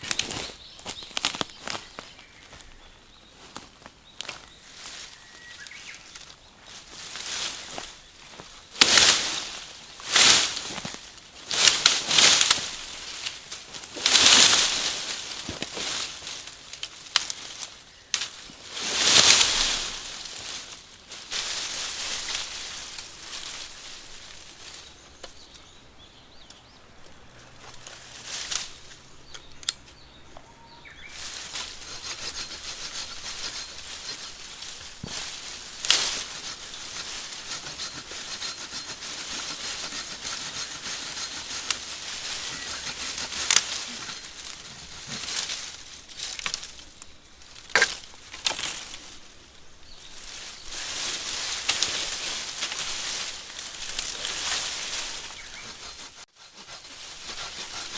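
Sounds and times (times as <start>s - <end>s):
branches cracking: 0.0s - 25.8s, 26.4s - 57.9s
rustling through brush and leaves: 0.0s - 57.9s.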